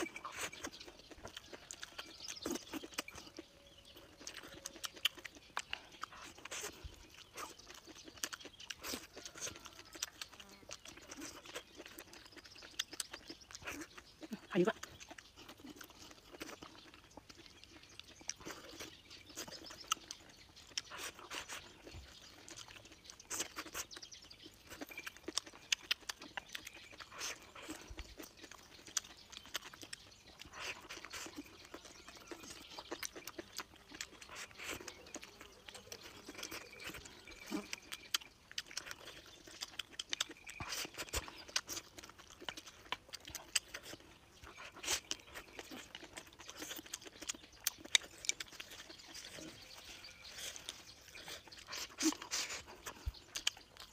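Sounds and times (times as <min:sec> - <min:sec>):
person chewing food: 0:00.0 - 0:53.9.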